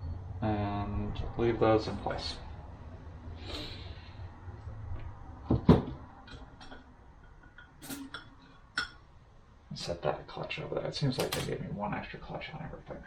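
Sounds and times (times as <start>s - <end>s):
sharp knocks on workbench: 5.5s - 6.0s.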